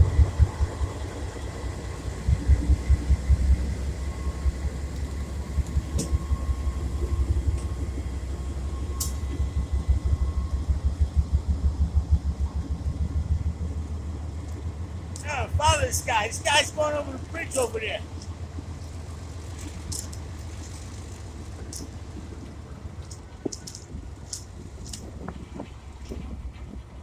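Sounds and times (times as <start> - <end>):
freight train rumbling past: 0.0 - 27.0
wheels clacking rhythmically: 10.7 - 22.2.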